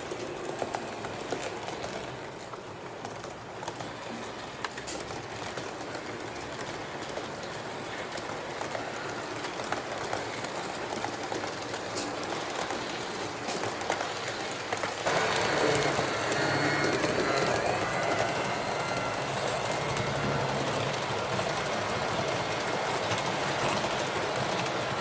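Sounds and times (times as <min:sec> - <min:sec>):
wheels clicking on rail joints: 0:00.0 - 0:25.0
model train motor humming: 0:14.9 - 0:25.0.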